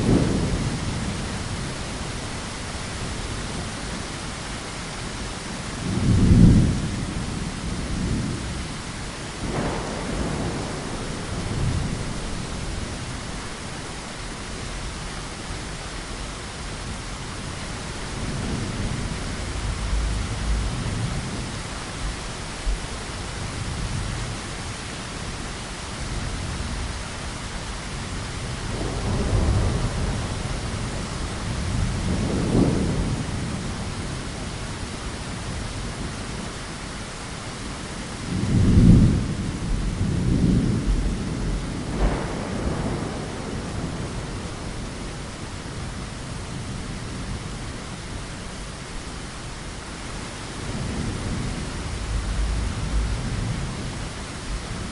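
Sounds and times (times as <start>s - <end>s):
thunder rumbling: 0.0s - 3.6s, 5.8s - 15.0s, 16.8s - 24.5s, 28.0s - 35.6s, 38.2s - 47.7s, 50.2s - 54.9s
heavy rain: 0.0s - 54.9s.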